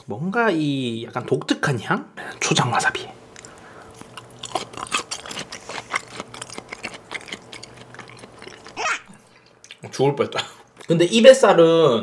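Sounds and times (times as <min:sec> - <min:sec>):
wet mouth chewing clicks: 0:03.3 - 0:09.9.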